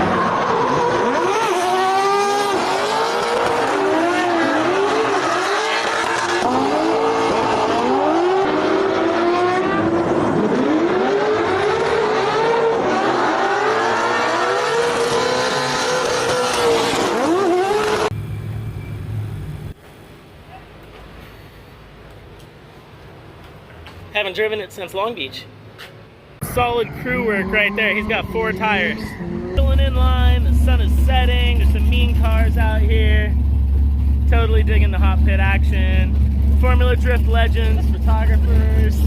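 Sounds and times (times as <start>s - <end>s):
car engine revving hard: 0.0s - 18.1s.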